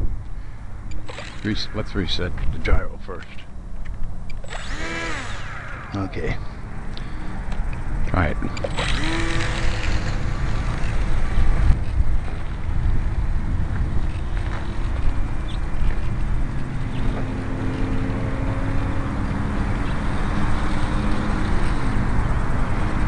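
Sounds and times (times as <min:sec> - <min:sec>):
model airplane motor humming: 0:01.0 - 0:01.5, 0:04.4 - 0:06.7, 0:08.4 - 0:12.4, 0:14.0 - 0:23.0
wind buffeting microphone: 0:04.0 - 0:23.0.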